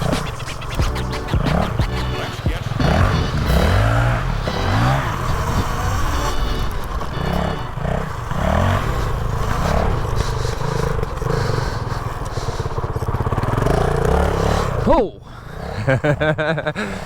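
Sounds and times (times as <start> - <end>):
off-road vehicle engine revving: 0.0 - 17.0
clatter: 1.4 - 14.9.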